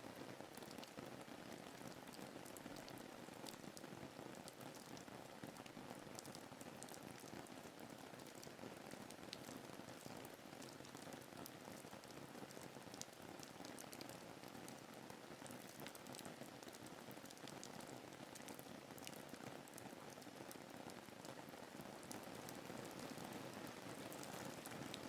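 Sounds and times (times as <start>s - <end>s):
rain hiss: 13.7s - 25.0s
raindrop ticks: 15.5s - 17.8s.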